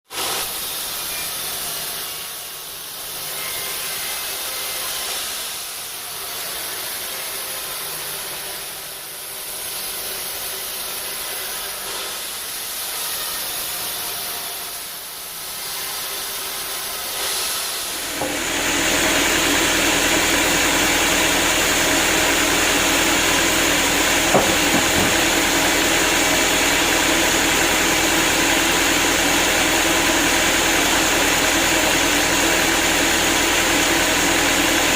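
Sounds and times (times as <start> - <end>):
saw blade cutting log: 17.9 - 34.9
machine hum: 18.0 - 34.9.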